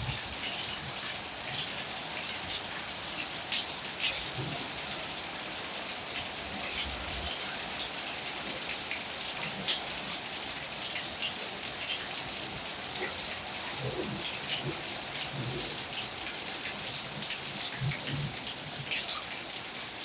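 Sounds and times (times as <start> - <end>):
heavy rain falling: 0.0 - 20.0
raindrops striking a surface: 0.0 - 20.0.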